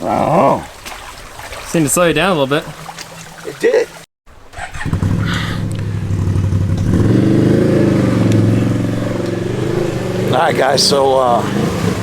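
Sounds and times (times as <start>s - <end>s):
engine revving: 4.5s - 12.0s.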